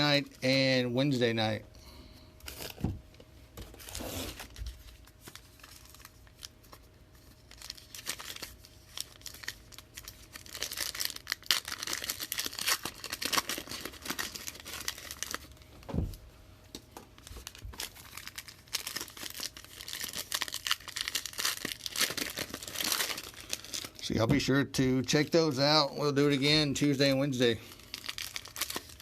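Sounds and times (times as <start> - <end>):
plastic wrapping crinkling and tearing: 3.6 - 15.9, 17.0 - 24.2, 26.4 - 29.0
soft thump: 15.9 - 16.2.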